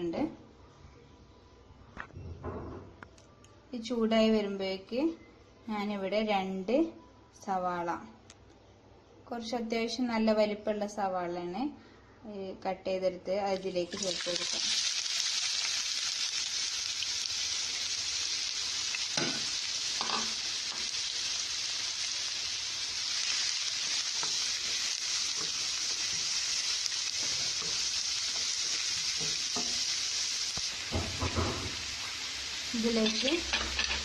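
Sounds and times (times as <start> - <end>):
onions sizzling in oil: 13.7 - 34.0
spoon knocking in pan: 30.9 - 31.8.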